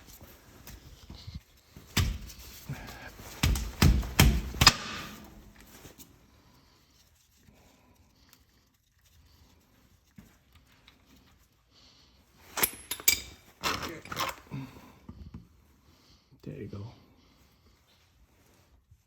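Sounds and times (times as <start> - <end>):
wrench clinking and knocking: 12.6 - 13.4.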